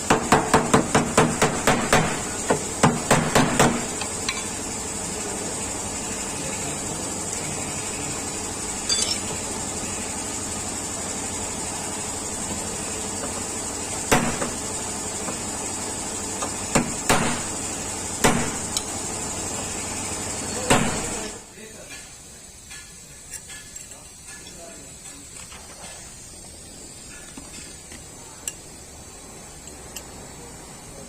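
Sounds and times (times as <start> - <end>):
steady background hiss: 14.0 - 31.0.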